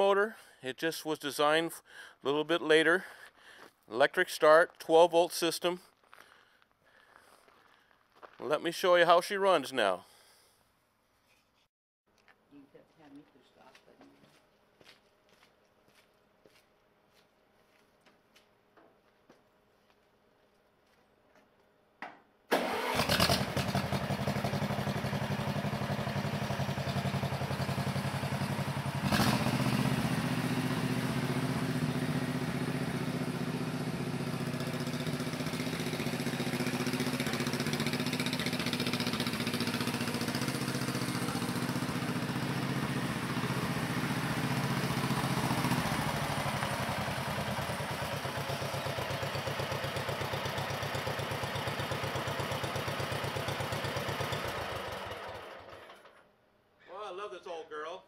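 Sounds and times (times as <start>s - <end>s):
electric starter cranking: 22.5s - 23.8s
tractor engine running: 22.5s - 56.2s
engine knock: 34.4s - 42.4s.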